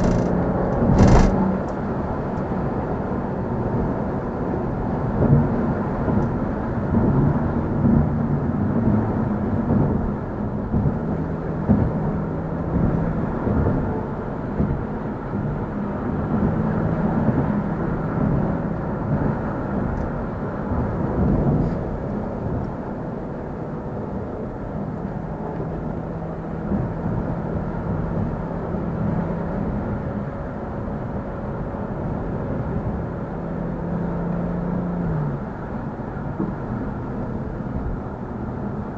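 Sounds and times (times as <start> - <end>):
car engine running: 0.0 - 22.7
road rumble: 0.0 - 38.9.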